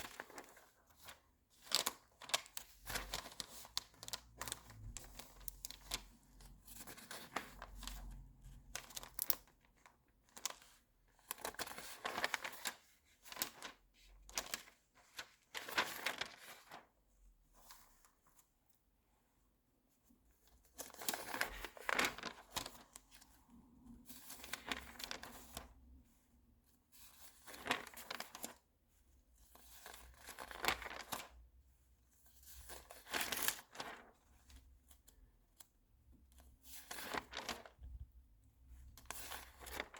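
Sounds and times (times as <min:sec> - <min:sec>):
magazine pages turning: 0:00.0 - 0:16.9, 0:20.8 - 0:23.3, 0:24.1 - 0:25.7, 0:27.0 - 0:28.6, 0:29.5 - 0:31.3, 0:32.4 - 0:34.4, 0:36.4 - 0:37.9, 0:38.8 - 0:39.9.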